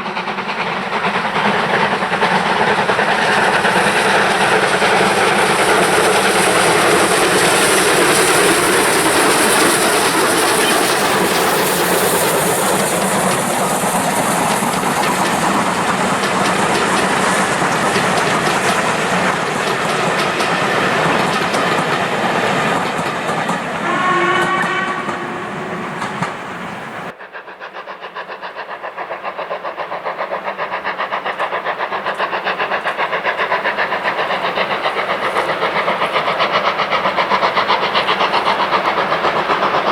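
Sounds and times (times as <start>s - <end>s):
steam train rushing past: 0.0s - 39.9s
train fast repeating beats: 0.0s - 39.9s
train whistle blast: 23.8s - 26.6s.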